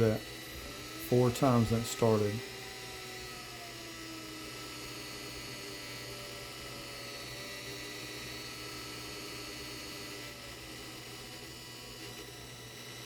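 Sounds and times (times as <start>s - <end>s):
electric motor whine and hum: 0.0s - 13.0s.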